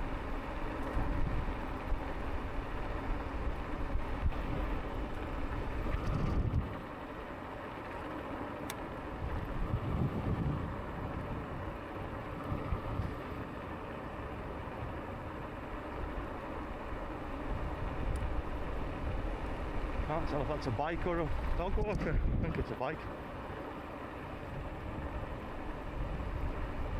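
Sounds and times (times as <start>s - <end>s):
wind noise on microphone: 0.0s - 6.8s, 9.2s - 13.5s, 17.4s - 22.7s, 24.5s - 26.9s
e-bike rolling rumble: 0.0s - 26.9s.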